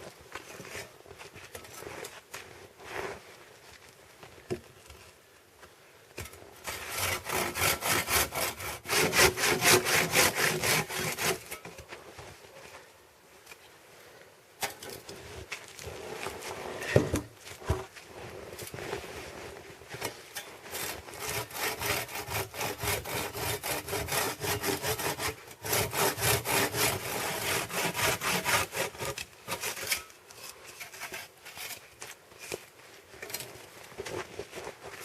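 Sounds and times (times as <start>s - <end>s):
hand saw cutting wood: 6.6s - 11.8s, 20.0s - 32.6s.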